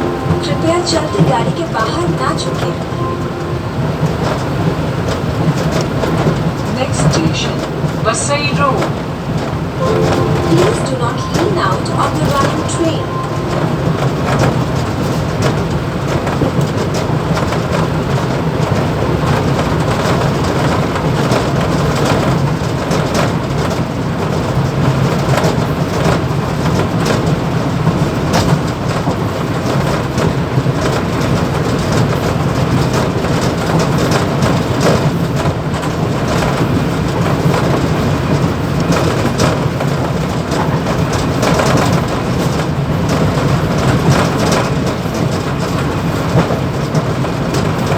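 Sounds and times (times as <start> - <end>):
train wheels on rail: 1.8 - 47.9.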